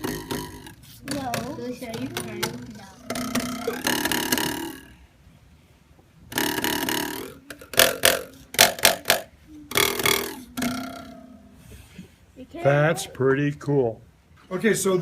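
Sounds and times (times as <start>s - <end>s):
drinking-straw oboe buzzing: 6.3s - 11.4s.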